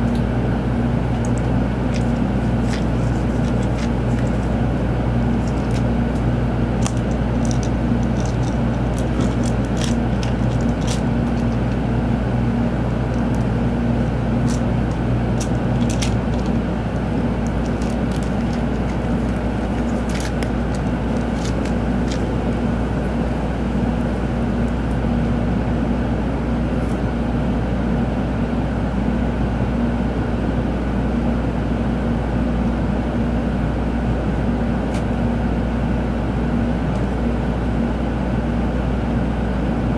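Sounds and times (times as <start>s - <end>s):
low hum: 0.0s - 26.5s
train cabin rumble and hum: 0.0s - 39.9s.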